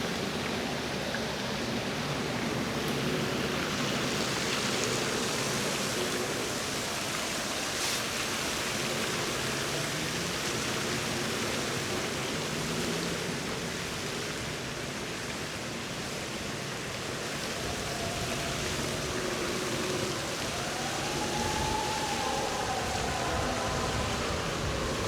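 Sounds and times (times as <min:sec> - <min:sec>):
faint rising tone: 0:17.3 - 0:25.0.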